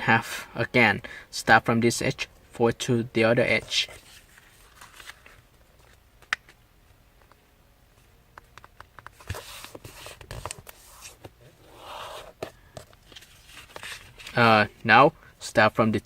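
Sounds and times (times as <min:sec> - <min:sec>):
paper rustling and crinkling: 0:03.6 - 0:06.0, 0:13.0 - 0:14.4.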